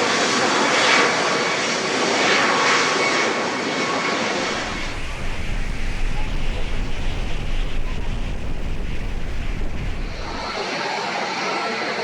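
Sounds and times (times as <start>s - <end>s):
airplane engines passing: 0.1s - 12.0s
wind buffeting microphone: 4.4s - 10.6s.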